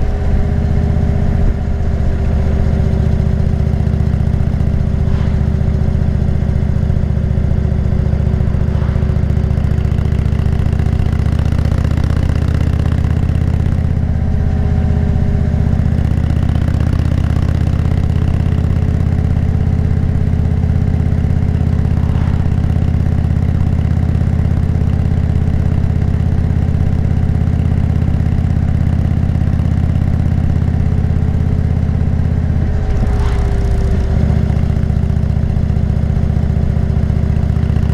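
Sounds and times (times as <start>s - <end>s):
road noise: 0.0s - 12.1s, 18.9s - 25.3s, 30.9s - 36.5s
motorcycle engine running: 0.0s - 37.9s
wind noise: 4.4s - 10.3s, 21.2s - 23.8s, 32.4s - 35.2s.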